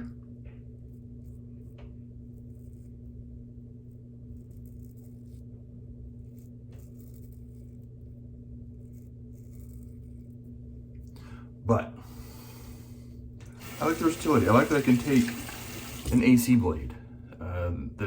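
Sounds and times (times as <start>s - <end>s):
laundry machine humming: 12.0s - 17.0s.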